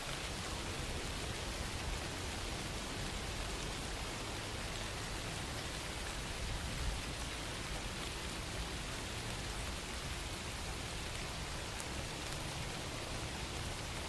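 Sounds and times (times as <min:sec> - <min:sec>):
steady rain falling: 0:00.0 - 0:14.0
rain drop ticks: 0:11.0 - 0:13.8.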